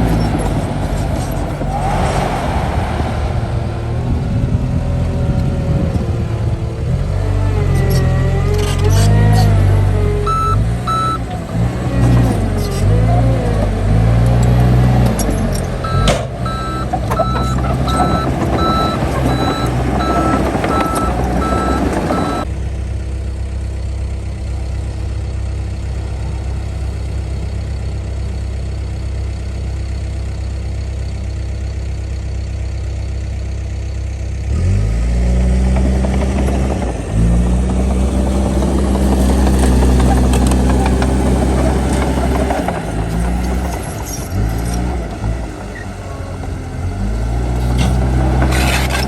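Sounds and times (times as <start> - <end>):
heavy diesel machinery engine: 0.0 - 49.0
reversing alarm beeping: 10.2 - 11.3, 15.8 - 22.5.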